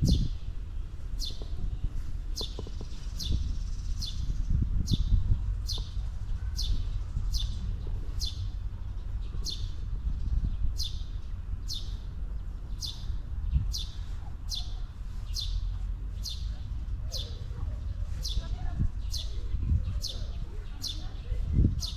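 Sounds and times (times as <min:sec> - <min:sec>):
bird chirping: 0:00.0 - 0:21.2
steady low rumble: 0:00.0 - 0:21.9.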